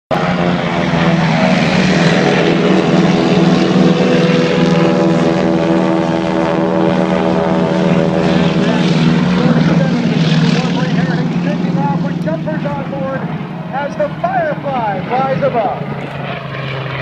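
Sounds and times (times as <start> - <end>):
propeller aircraft engine drone: 0.1 - 17.0.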